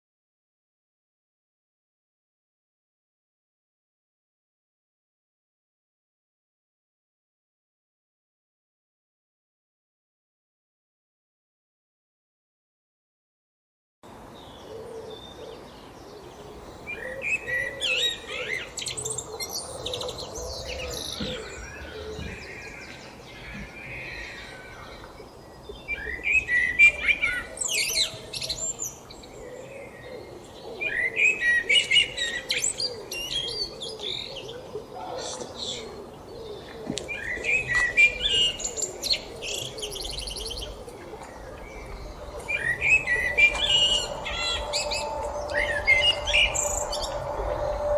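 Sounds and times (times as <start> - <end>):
songbirds singing: 14.1 - 47.9
low wavering bird call: 37.3 - 47.9.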